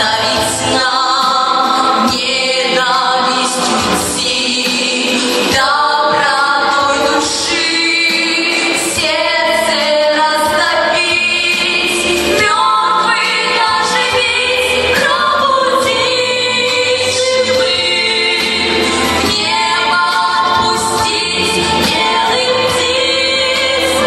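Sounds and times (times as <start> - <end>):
musical accompaniment: 0.0 - 24.0
voices singing long notes: 0.0 - 24.0.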